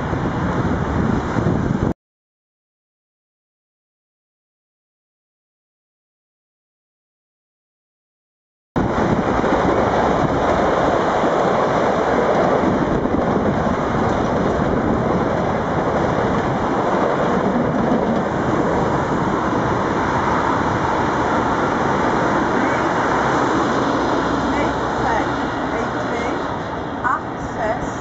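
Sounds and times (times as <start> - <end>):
passing electric train rushing: 0.0 - 1.9, 8.8 - 28.0.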